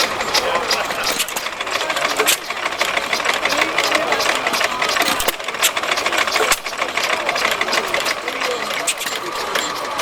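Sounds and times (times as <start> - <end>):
people talking: 0.0 - 10.0
stationary engine clattering: 0.0 - 10.0.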